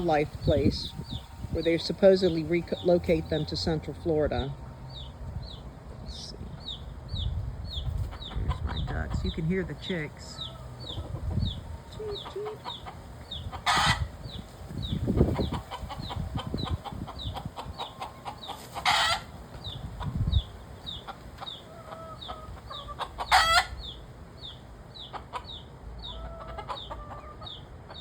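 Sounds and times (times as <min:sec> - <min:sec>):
chicks cheeping: 0:00.0 - 0:28.0
hens clucking: 0:00.0 - 0:28.0
chicken squawking: 0:07.7 - 0:19.4, 0:20.0 - 0:24.0, 0:25.0 - 0:28.0.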